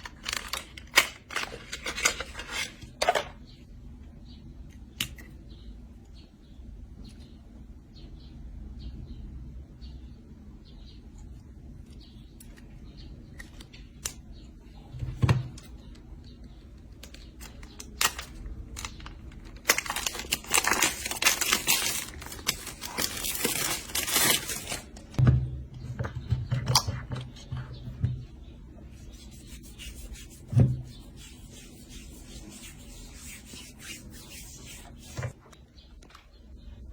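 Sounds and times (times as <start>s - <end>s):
packaging rustling and tearing: 0.0s - 2.8s, 17.4s - 25.2s.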